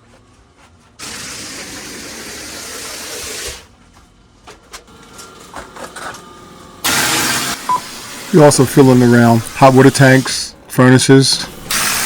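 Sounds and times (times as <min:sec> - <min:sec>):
cement sprayer hissing: 0:01.0 - 0:03.7, 0:06.8 - 0:10.6, 0:11.3 - 0:12.0.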